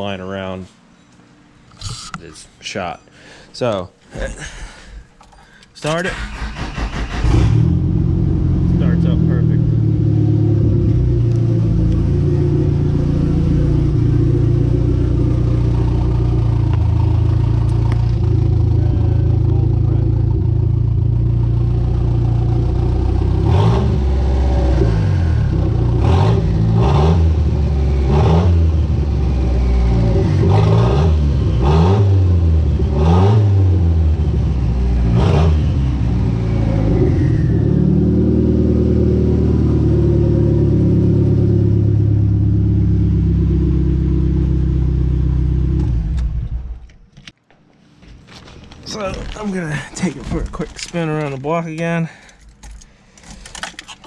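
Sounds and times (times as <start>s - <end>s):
turbocharged engine revving and idling: 6.1s - 46.8s.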